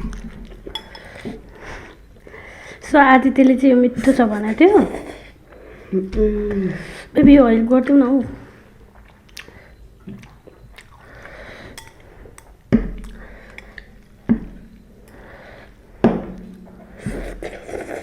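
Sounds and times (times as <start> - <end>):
wet chewing of noodles: 7.8 - 15.9, 16.8 - 18.0.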